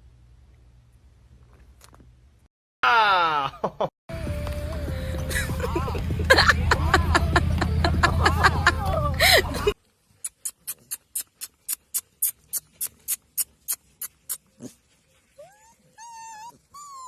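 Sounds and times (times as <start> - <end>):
dog whining: 14.2 - 17.0.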